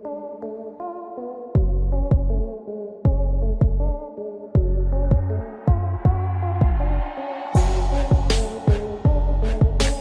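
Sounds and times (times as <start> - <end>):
electronic music with deep bass: 0.0 - 10.0.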